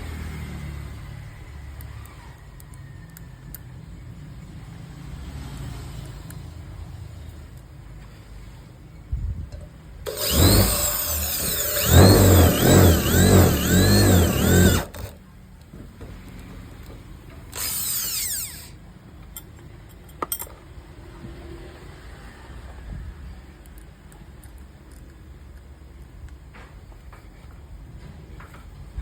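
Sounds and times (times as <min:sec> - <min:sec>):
electric drill motor running: 0:10.1 - 0:15.1, 0:17.5 - 0:18.8.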